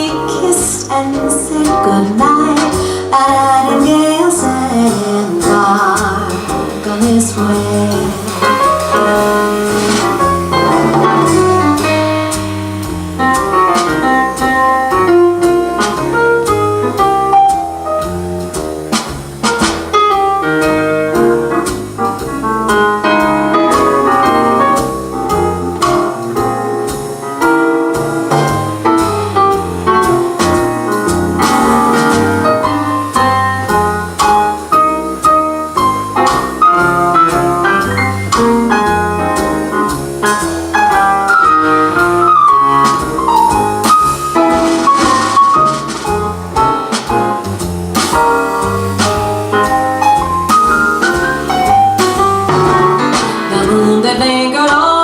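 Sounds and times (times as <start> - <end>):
drums with cymbal strokes: 0.0 - 55.0
upright bass: 0.0 - 55.0
keyboard melody: 1.6 - 54.6.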